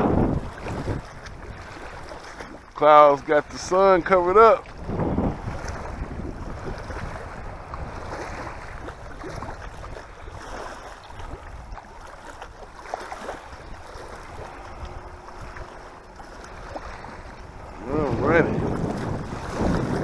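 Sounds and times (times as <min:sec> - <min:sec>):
water lapping and splashing: 0:00.0 - 0:20.0
wind buffeting the microphone: 0:00.0 - 0:20.0.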